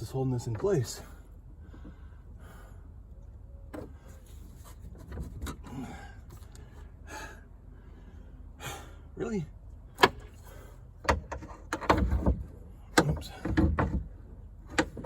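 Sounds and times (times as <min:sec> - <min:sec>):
car hood knocks and scrapes: 0:11.1 - 0:14.1.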